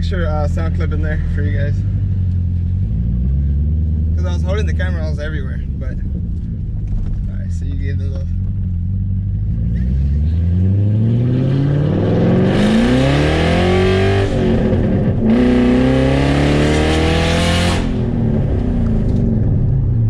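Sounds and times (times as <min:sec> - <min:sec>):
loud car engine accelerating: 0:00.4 - 0:07.0, 0:08.3 - 0:20.0.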